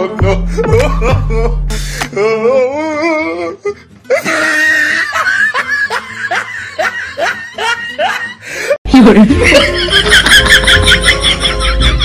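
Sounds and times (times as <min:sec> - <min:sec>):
background music: 0:00.0 - 0:12.0
person laughing: 0:00.3 - 0:01.6, 0:04.1 - 0:12.0.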